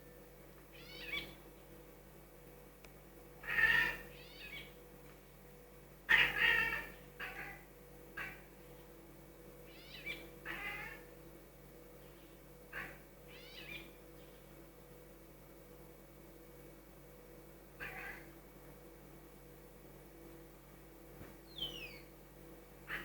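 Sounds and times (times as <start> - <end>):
cat meowing and chattering: 17.8 - 18.3.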